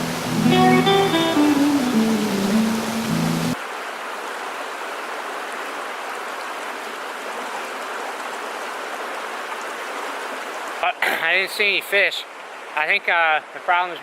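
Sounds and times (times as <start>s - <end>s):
guitar music: 0.0s - 3.6s
stream rushing over rocks: 0.0s - 14.0s.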